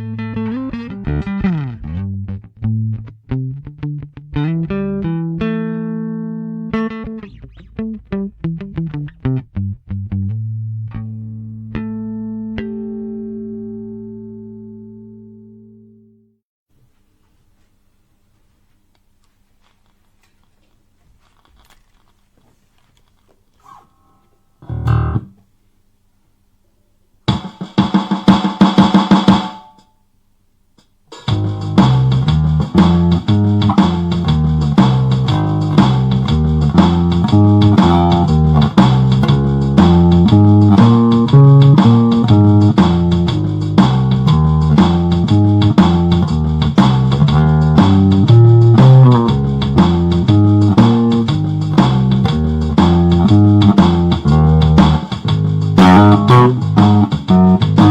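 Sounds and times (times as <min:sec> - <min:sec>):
electric bass guitar riff: 0:00.0 - 0:16.4, 0:23.6 - 0:25.4, 0:31.2 - 0:57.9
drum beat: 0:27.3 - 0:29.8, 0:30.8 - 0:57.9.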